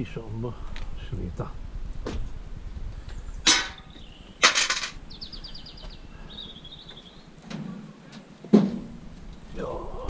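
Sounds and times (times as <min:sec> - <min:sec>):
dull thud of metal: 0:03.4 - 0:05.0, 0:08.5 - 0:08.9
sharp metal clunk: 0:03.4 - 0:05.0
scrap metal clattering: 0:03.5 - 0:05.0.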